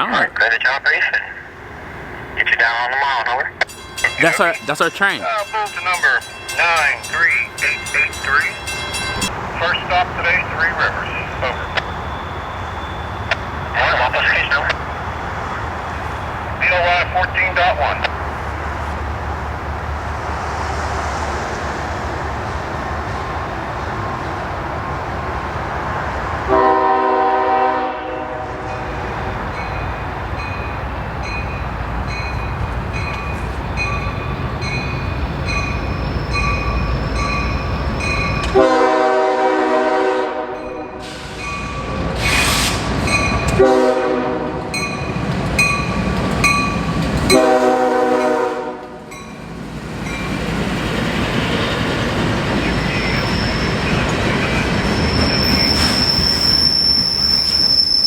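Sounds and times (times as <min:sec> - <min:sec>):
freight train rumbling: 0:00.0 - 0:58.0
bell dinging: 0:03.7 - 0:09.3
train air horn: 0:26.5 - 0:28.9, 0:38.5 - 0:41.4, 0:43.5 - 0:44.7, 0:47.3 - 0:49.0.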